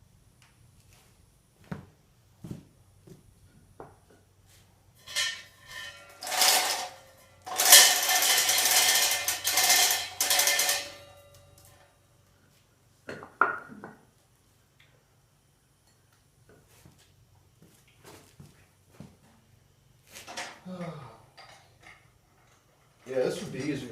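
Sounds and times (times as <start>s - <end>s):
metal clanking and scraping: 5.0s - 11.8s
metal rattling: 5.0s - 11.8s.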